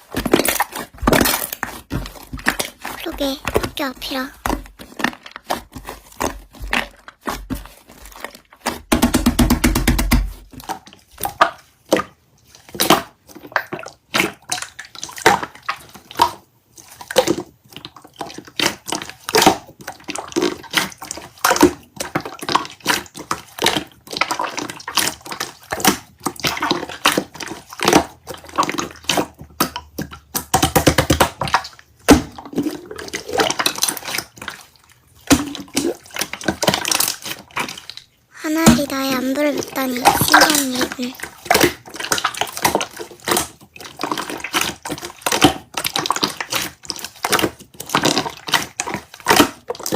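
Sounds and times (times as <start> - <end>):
slime squelching: 0.0 - 49.9
slime squishing with wet clicks: 10.5 - 38.2, 39.9 - 49.9.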